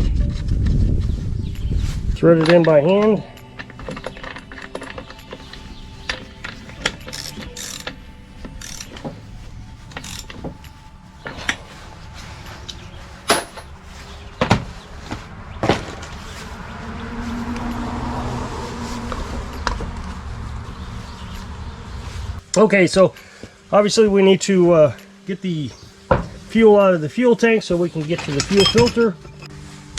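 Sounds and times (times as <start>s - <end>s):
hand tools clicking and clinking: 2.3s - 11.8s, 12.5s - 14.0s, 27.9s - 29.5s
low background rumble: 3.2s - 22.5s.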